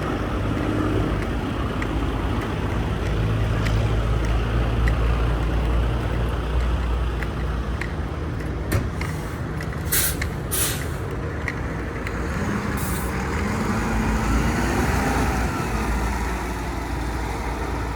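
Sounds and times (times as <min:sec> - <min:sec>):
air hiss bursts: 0:09.9 - 0:11.0.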